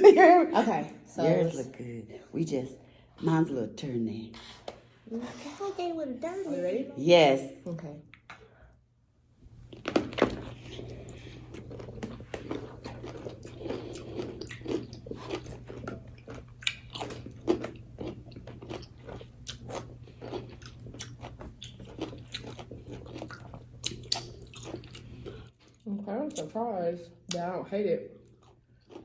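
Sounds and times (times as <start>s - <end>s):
steady low hum: 0.0s - 28.9s
close-up wet chewing crunches: 9.7s - 26.5s.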